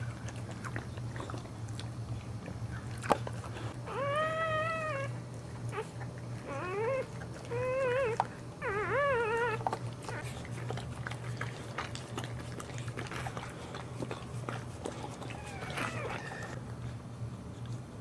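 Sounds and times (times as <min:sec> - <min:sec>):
steady low hum: 0:00.0 - 0:18.0
dog whining: 0:03.8 - 0:10.4, 0:14.9 - 0:16.6.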